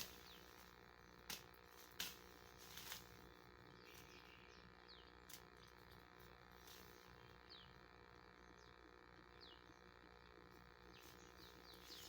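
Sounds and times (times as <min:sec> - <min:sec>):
faint bird chirps: 0:03.7 - 0:05.2, 0:10.8 - 0:12.0.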